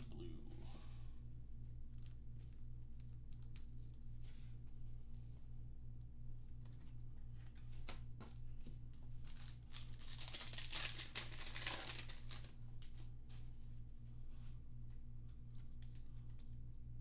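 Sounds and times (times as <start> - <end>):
wrapper tearing and crinkling: 9.2 - 13.0.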